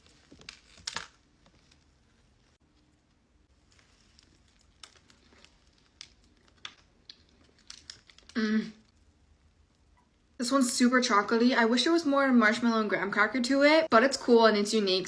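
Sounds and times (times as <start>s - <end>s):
person chewing: 3.8s - 9.1s.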